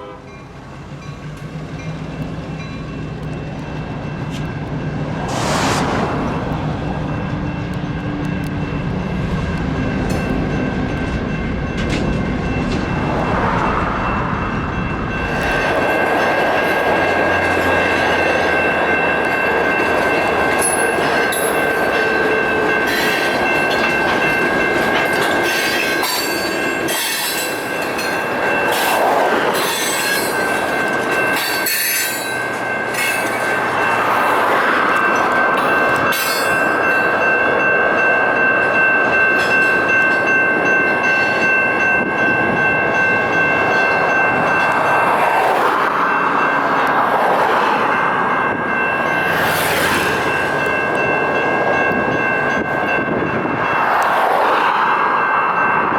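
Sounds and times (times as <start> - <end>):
train low rumble: 0.0 - 55.9
train wheels squealing: 20.1 - 37.1.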